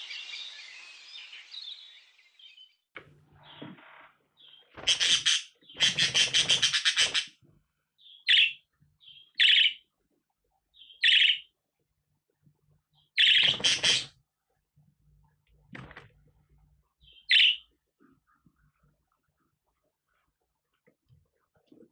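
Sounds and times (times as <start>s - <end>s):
budgerigar chattering: 4.8s - 7.4s, 11.0s - 11.4s, 13.2s - 14.1s, 17.2s - 17.6s.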